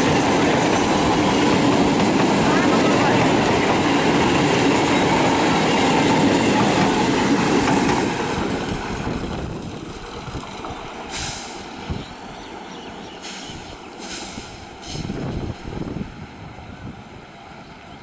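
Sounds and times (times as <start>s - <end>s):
train passing at speed: 0.0s - 18.0s
brief hiss: 11.1s - 11.8s, 13.2s - 15.3s.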